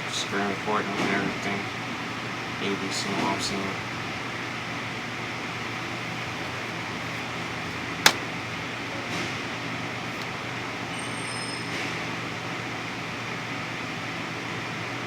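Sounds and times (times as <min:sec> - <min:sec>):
air conditioning hum: 0:00.0 - 0:11.1.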